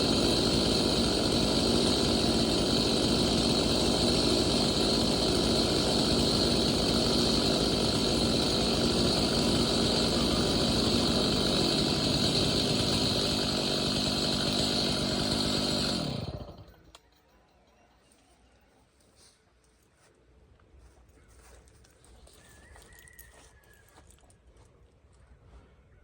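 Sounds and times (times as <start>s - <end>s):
chainsaw engine running and stopping: 0.0s - 17.1s.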